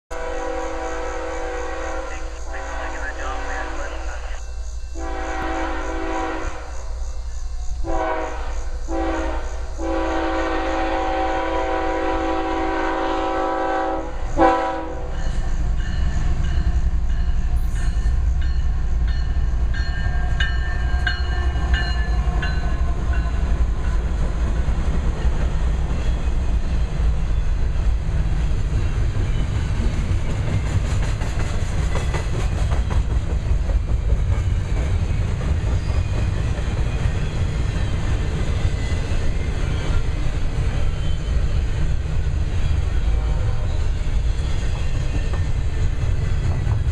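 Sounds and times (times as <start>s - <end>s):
locomotive air horn blasts: 0.1s - 4.0s, 5.0s - 6.7s, 7.9s - 15.1s
train rumbling past: 0.1s - 46.9s.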